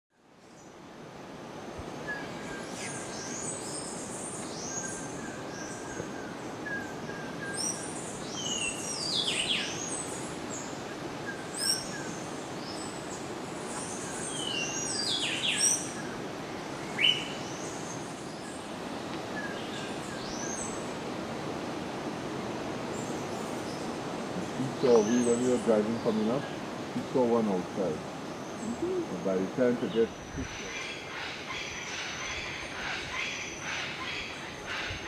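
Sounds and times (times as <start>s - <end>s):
steady background hiss: 0.2s - 35.0s.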